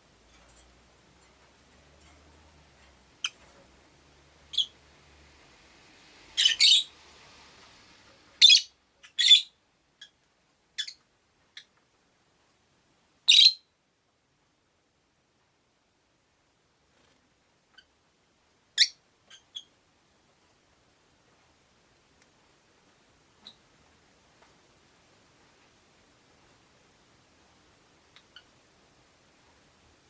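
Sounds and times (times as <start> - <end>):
lovebirds chirping shrilly: 6.4 - 6.9, 8.4 - 9.5.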